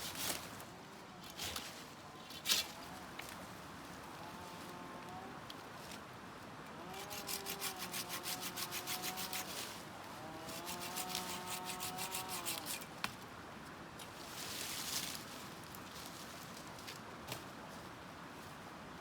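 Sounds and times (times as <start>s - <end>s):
hand tool rasping on wood: 6.9s - 9.6s, 10.4s - 12.9s.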